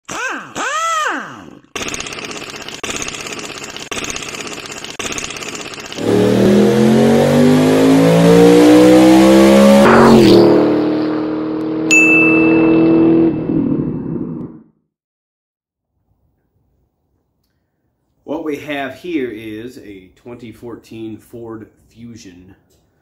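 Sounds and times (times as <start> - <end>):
car engine revving: 6.0 - 14.6
sharp high ring: 11.9 - 13.3.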